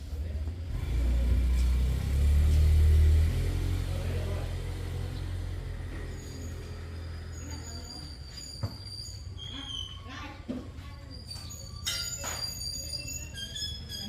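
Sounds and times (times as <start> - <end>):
vehicle engine rumbling: 0.0 - 9.4.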